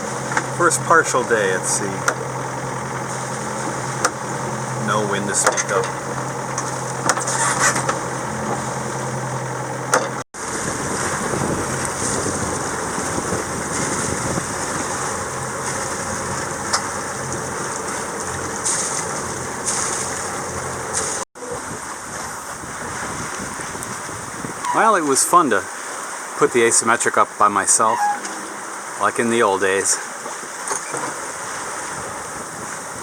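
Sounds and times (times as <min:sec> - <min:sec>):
boat engine droning: 0:00.0 - 0:33.0
water rushing: 0:00.0 - 0:33.0
wind noise: 0:10.4 - 0:24.9, 0:31.4 - 0:33.0.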